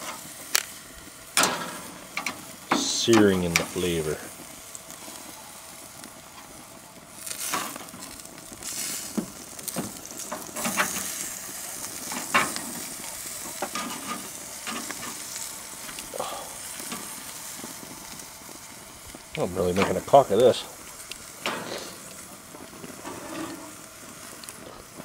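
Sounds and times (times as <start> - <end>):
meat sizzling on a grill: 0.0 - 25.0
metal tongs scraping grate: 23.0 - 23.7.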